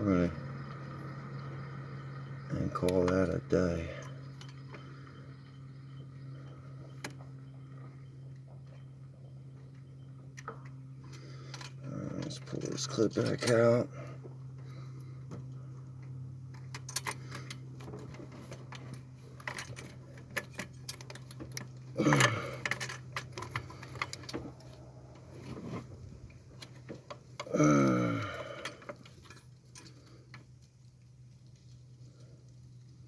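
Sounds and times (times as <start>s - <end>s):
steady hum: 0.0s - 33.0s
metal tools clinking: 11.4s - 14.0s, 16.6s - 30.4s.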